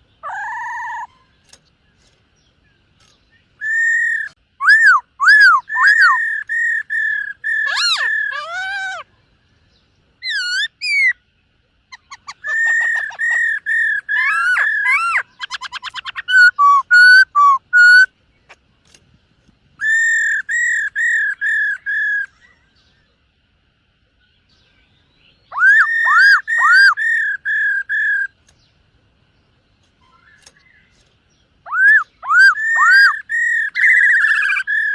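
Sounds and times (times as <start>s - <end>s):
bird whistled song: 0.0s - 9.1s, 9.7s - 11.3s, 11.9s - 18.1s, 19.8s - 23.1s, 24.2s - 28.7s, 30.0s - 34.9s
bird rapid trill: 11.9s - 18.1s, 30.0s - 34.9s.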